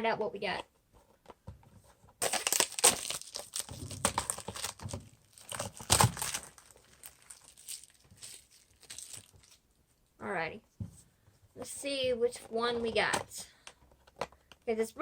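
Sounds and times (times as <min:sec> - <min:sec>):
packaging crinkling and tearing: 0:02.2 - 0:09.6.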